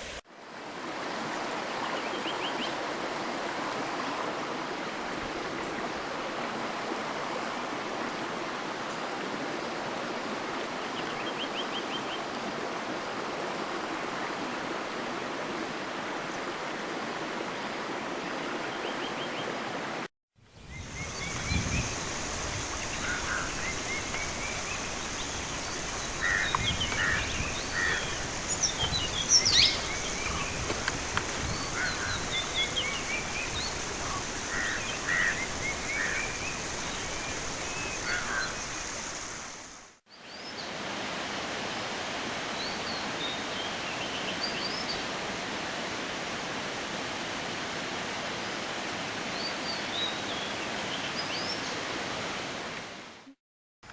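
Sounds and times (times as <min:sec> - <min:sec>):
flowing water: 0:00.0 - 0:11.3, 0:19.5 - 0:40.0
birds calling: 0:20.7 - 0:39.8.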